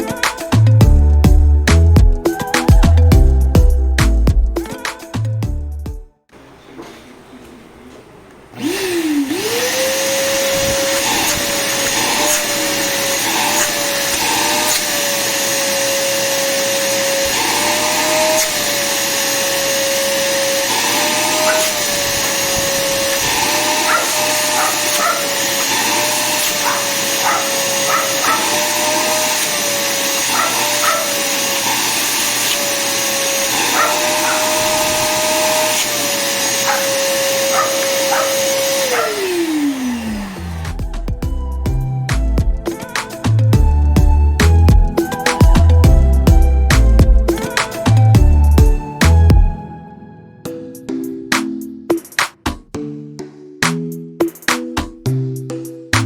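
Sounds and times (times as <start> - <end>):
vacuum cleaner motor whine: 6.4 - 41.1.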